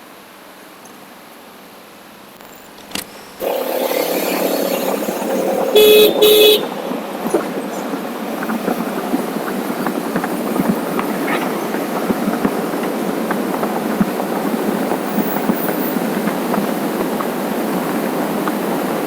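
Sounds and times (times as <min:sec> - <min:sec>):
road and wind noise: 0:00.0 - 0:19.0
vehicle horn toots: 0:03.4 - 0:06.9.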